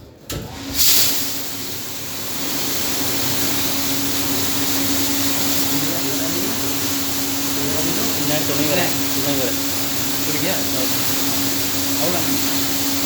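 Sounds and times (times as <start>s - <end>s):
tap water running: 0.6s - 13.0s.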